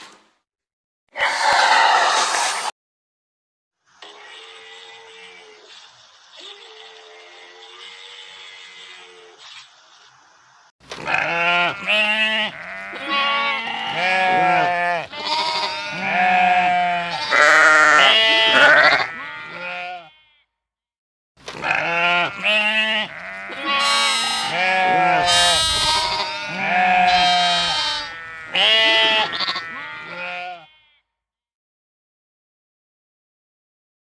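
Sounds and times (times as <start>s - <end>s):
sheep bleating: 6.5s - 9.4s, 11.0s - 20.5s, 21.6s - 31.1s.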